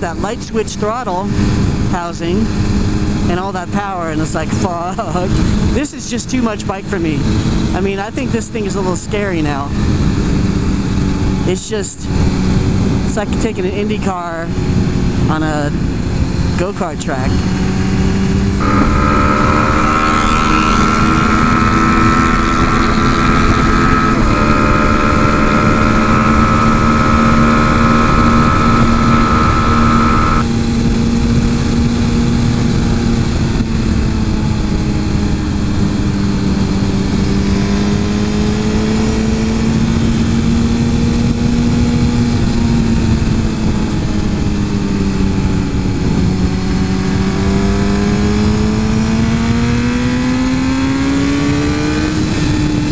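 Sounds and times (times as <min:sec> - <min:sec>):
motorcycle engine running: 0:00.0 - 0:52.9
high whine: 0:15.2 - 0:31.0.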